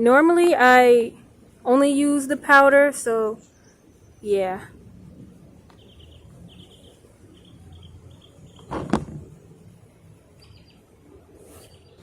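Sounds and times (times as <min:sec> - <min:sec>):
low steady background: 0:00.0 - 0:12.0
knock-like noise: 0:08.6 - 0:09.3.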